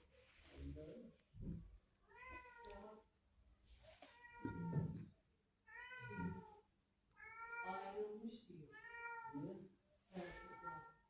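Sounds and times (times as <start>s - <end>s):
cat meowing: 4.1s - 5.0s, 5.7s - 6.6s, 7.2s - 8.0s, 8.7s - 9.5s, 10.2s - 11.0s.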